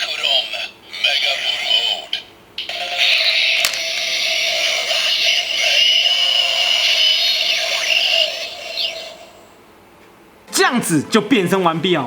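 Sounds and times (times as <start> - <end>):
sharp click: 3.6 - 3.8.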